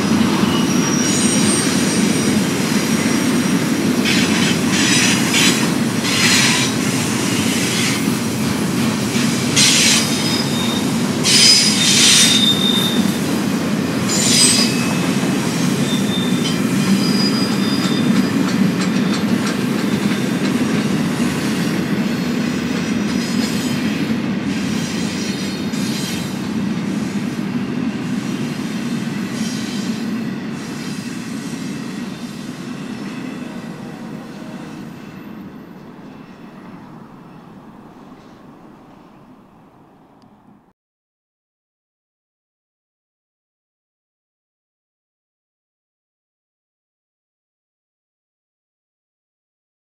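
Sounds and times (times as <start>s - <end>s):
high-pitched wheel squeals: 0.0s - 6.8s, 9.6s - 13.2s, 14.1s - 19.3s
train wheels rumbling on rails: 0.0s - 40.7s.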